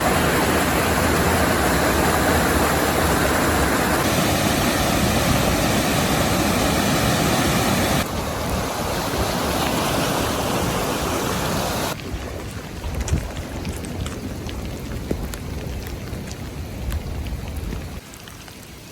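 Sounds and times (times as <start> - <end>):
heavy rain falling: 0.0 - 18.9.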